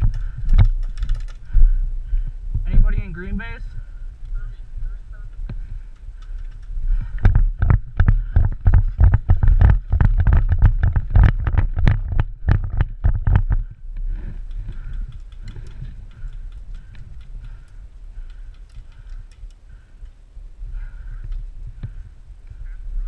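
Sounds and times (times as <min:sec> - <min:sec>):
gear ticks: 0:00.0 - 0:01.8, 0:05.1 - 0:20.2
running footfalls thudding: 0:06.9 - 0:17.6.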